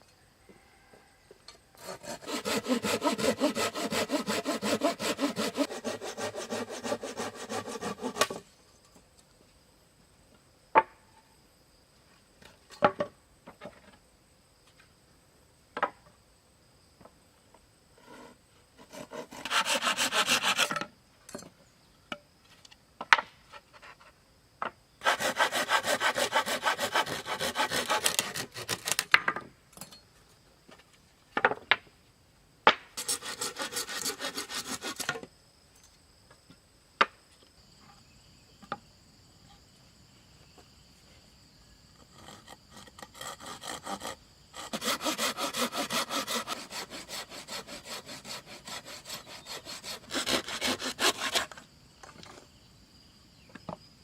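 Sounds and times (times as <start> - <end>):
hand saw cutting wood: 1.8 - 8.4, 18.8 - 20.8, 25.0 - 29.0, 33.0 - 35.2, 42.1 - 51.6.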